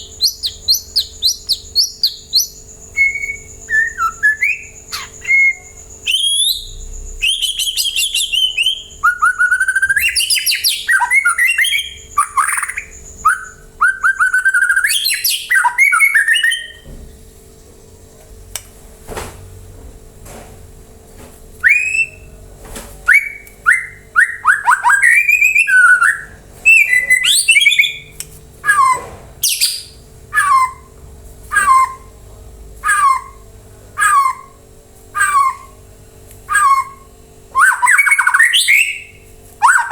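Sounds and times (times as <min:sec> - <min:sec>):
bird singing whistled phrases: 0:00.0 - 0:16.8, 0:21.6 - 0:22.4, 0:23.0 - 0:30.9, 0:31.5 - 0:32.2, 0:32.8 - 0:34.6, 0:35.2 - 0:35.8, 0:36.5 - 0:39.9.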